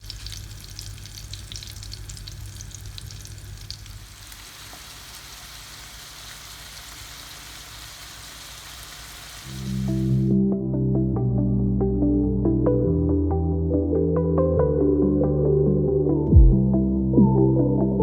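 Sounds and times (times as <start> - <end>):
food sizzling in hot oil: 0.0 - 10.4.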